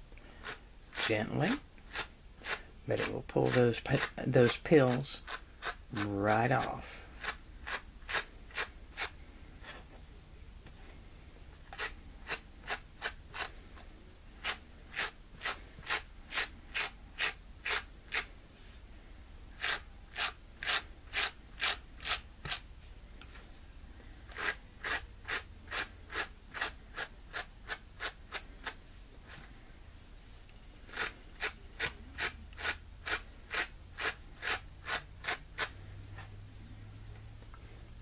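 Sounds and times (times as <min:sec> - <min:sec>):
brush scratching over knit: 0:00.0 - 0:10.1, 0:11.6 - 0:18.9, 0:19.6 - 0:37.1.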